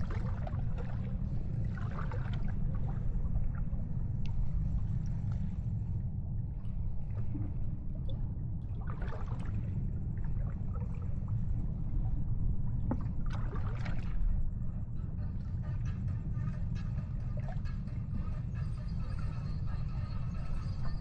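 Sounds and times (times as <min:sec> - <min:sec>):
sea water lapping and splashing: 0:00.0 - 0:14.8
steady low rumble: 0:00.0 - 0:21.0.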